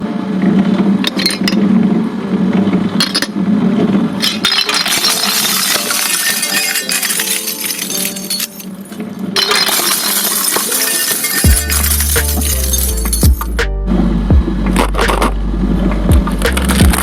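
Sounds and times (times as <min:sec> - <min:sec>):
glass crunching and clinking: 0:01.1 - 0:01.6, 0:03.0 - 0:03.4, 0:04.2 - 0:13.6.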